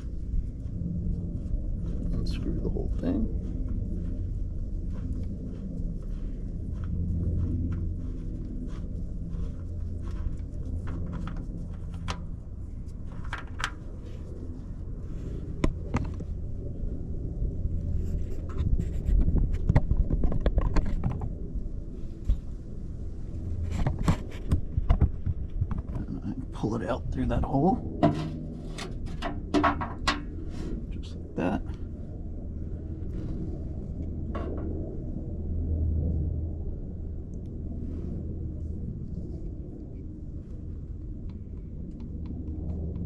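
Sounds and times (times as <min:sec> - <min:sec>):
steady low rumble: 0:00.0 - 0:43.0
fitting being unscrewed by hand: 0:28.0 - 0:30.3.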